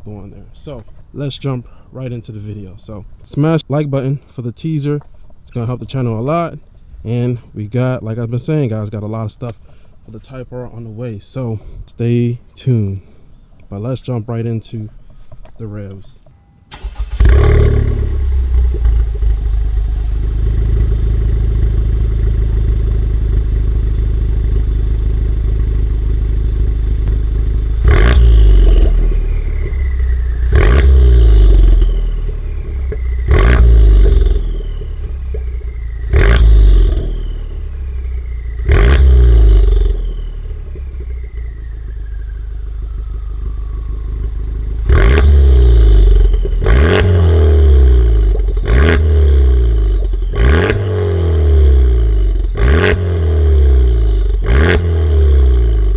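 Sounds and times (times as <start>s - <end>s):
car engine idling and revving: 16.3s - 55.9s.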